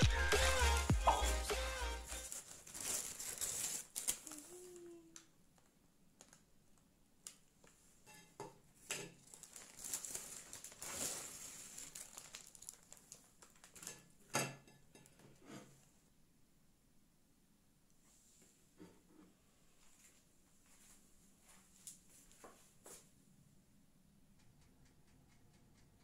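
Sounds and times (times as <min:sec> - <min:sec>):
plastic bag and paper crinkling: 0:02.1 - 0:06.5, 0:09.2 - 0:14.0.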